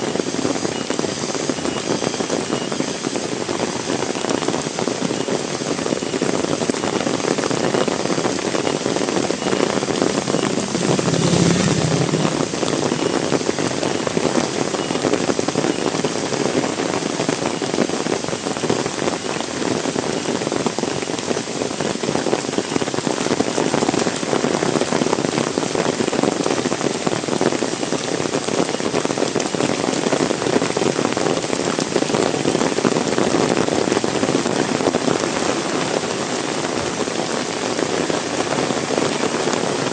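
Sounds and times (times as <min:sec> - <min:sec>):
heavy rain falling: 0:00.0 - 0:39.9
low thump: 0:10.1 - 0:13.1.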